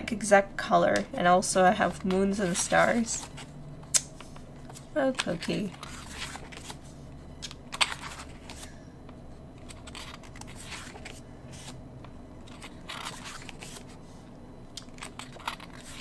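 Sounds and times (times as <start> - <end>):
paper rustling: 4.2 - 6.9, 9.6 - 11.8, 12.5 - 14.0.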